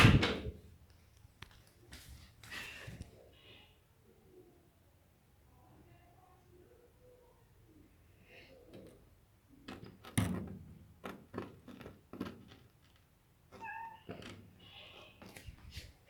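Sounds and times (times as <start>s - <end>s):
cat meowing: 13.6s - 14.3s.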